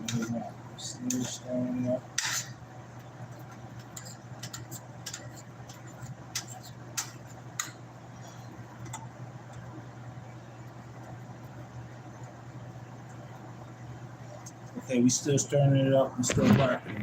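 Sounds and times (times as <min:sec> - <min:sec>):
steady low hum: 0:00.0 - 0:17.0
utensil clicking against a pan: 0:03.6 - 0:07.8.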